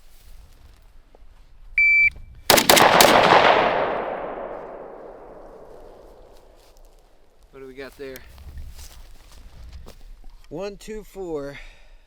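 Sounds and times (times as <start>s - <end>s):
shot timer beep: 1.8s - 2.1s
gunshot echo: 2.5s - 6.6s
gunshots: 2.5s - 6.6s.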